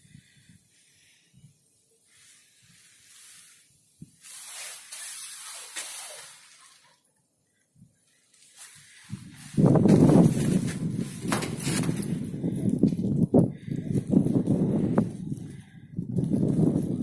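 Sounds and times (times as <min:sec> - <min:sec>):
strong wind gusting: 0:09.0 - 0:17.0.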